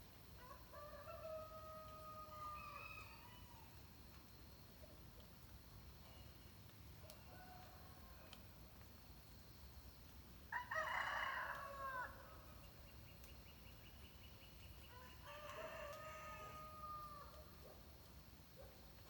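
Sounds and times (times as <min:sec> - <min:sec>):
rooster crowing: 0:10.5 - 0:12.2, 0:15.0 - 0:17.4.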